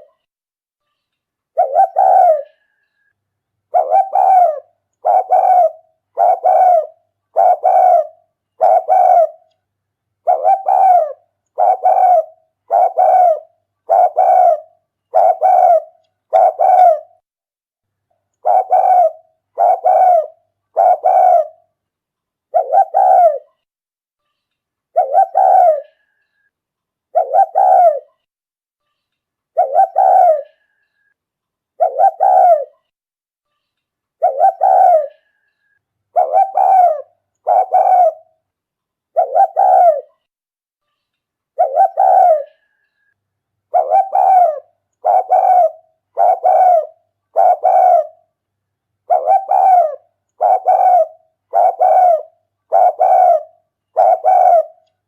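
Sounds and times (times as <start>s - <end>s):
dove cooing: 0.0s - 0.2s, 1.6s - 2.7s, 3.7s - 9.5s, 10.2s - 17.2s, 18.4s - 21.7s, 22.5s - 23.5s, 25.0s - 26.0s, 27.1s - 28.1s, 29.6s - 30.6s, 31.8s - 32.8s, 34.2s - 35.3s, 36.1s - 38.3s, 39.1s - 40.1s, 41.6s - 42.7s, 43.7s - 48.2s, 49.1s - 54.8s.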